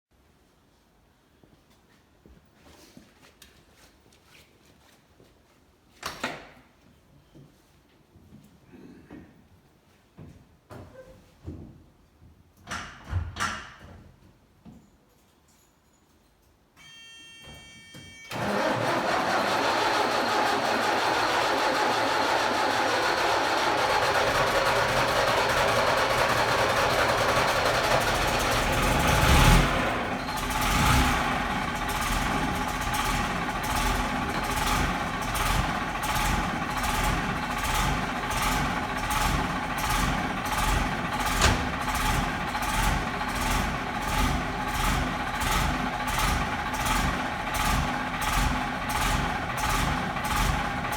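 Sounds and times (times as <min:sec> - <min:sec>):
diesel engine catching: 0:18.3 - 0:50.9
starter motor cranking: 0:18.3 - 0:50.9
diesel engine idling: 0:18.4 - 0:50.9.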